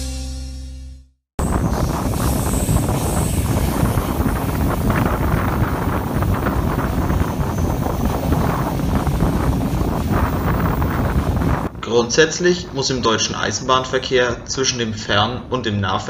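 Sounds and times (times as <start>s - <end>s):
train coaches running on track: 1.4s - 11.7s
wind buffeting microphone: 1.4s - 16.0s.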